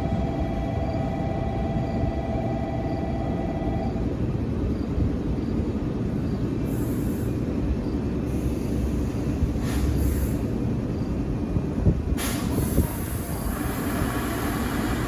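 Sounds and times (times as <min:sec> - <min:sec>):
electric train rumble: 0:00.0 - 0:15.0
short high hisses: 0:08.4 - 0:10.4, 0:12.2 - 0:15.0.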